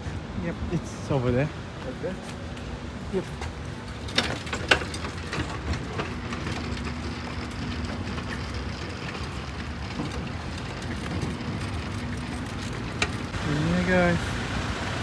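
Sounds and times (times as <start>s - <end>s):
steady rumbling noise: 11.4s - 15.0s.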